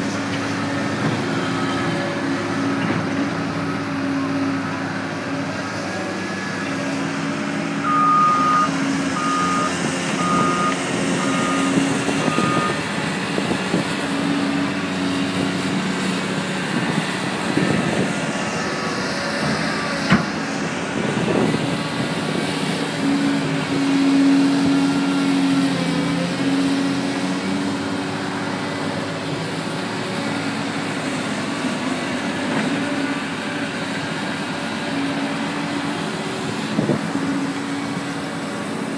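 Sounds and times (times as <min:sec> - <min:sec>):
diesel engines working: 0:00.0 - 0:38.9.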